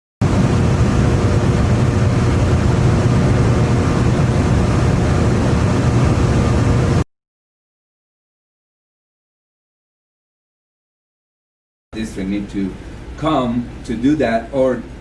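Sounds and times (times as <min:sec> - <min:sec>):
faint steady hum: 0:00.2 - 0:07.0, 0:12.0 - 0:15.0
heavy machinery rumbling: 0:00.2 - 0:07.0.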